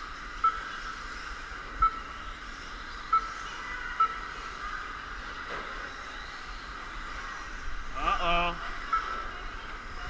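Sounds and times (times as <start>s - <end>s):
high-pitched electronic beeps: 0.4s - 0.9s, 1.8s - 2.2s, 2.9s - 4.4s, 8.8s - 9.3s.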